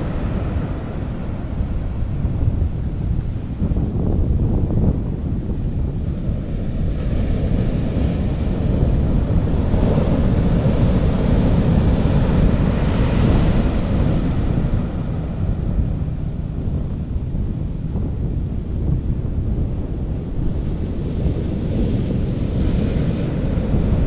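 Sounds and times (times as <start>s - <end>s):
sea waves washing up beach: 0.0s - 3.5s, 6.2s - 16.2s, 20.3s - 24.0s
wind rumble on microphone: 0.0s - 24.0s.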